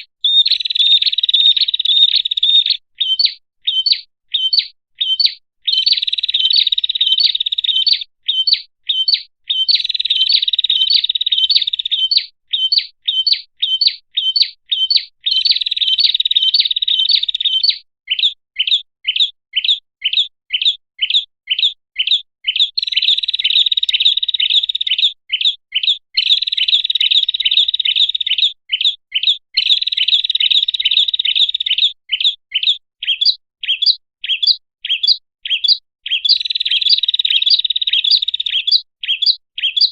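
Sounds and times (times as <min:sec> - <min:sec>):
buzzy bird trills: 0:00.0 - 0:24.7
bird chirps: 0:00.0 - 0:39.9.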